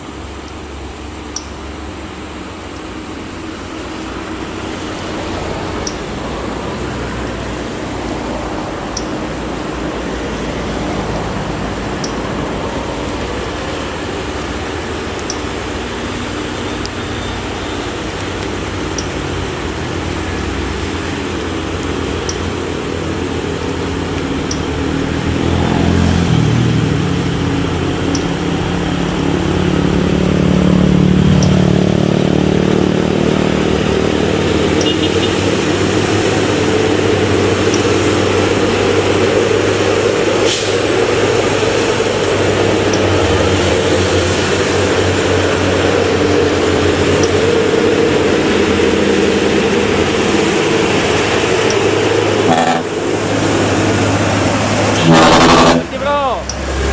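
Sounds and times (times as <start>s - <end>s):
truck diesel engine under load: 0.0s - 56.9s
sharp click: 1.3s - 1.8s, 12.0s - 12.3s.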